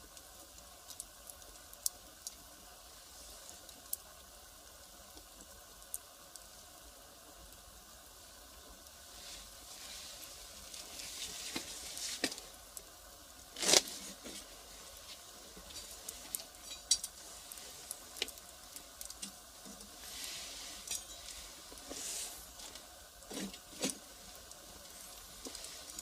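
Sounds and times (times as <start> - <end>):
fire crackling: 0.0 - 26.0
soft hiss of fire: 0.0 - 26.0
sharp pops and snaps: 0.1 - 2.5, 5.1 - 6.8, 10.6 - 14.4, 15.6 - 20.0.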